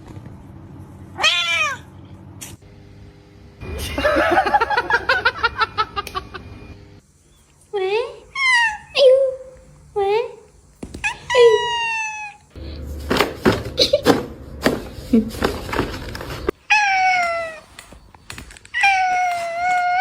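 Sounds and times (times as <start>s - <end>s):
cat meowing: 1.2s - 1.9s.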